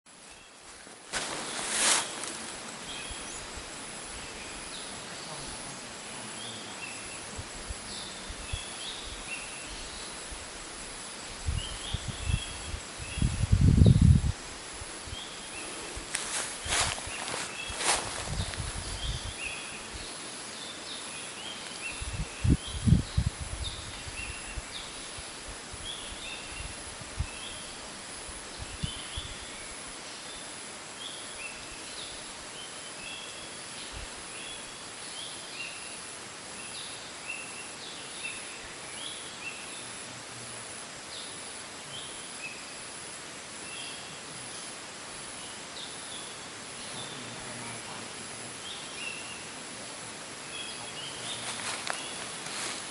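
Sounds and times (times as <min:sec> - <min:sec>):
small birds chirping: 0:00.1 - 0:40.1, 0:43.6 - 0:52.9
steady hiss: 0:00.1 - 0:52.9.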